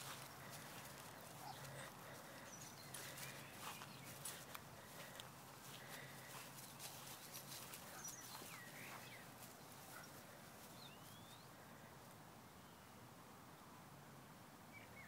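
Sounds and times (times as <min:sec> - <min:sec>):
faint bird chirps: 0:07.9 - 0:11.6.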